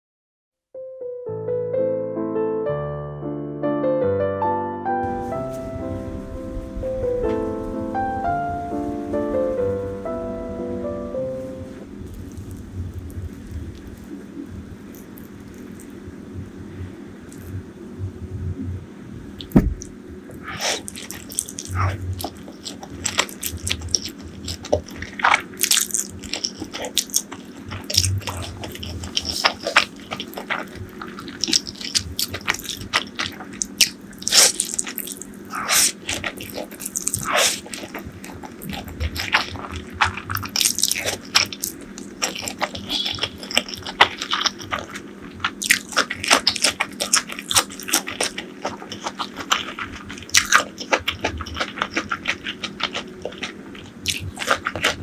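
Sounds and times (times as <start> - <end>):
crunchy chewing of fried food: 11.4 - 17.7, 19.4 - 55.0.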